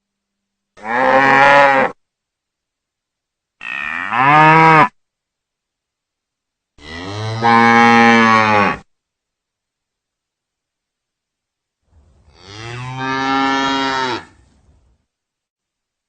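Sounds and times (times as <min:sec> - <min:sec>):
cow mooing: 0:00.8 - 0:02.0, 0:03.6 - 0:04.9, 0:06.8 - 0:08.8, 0:12.3 - 0:14.4.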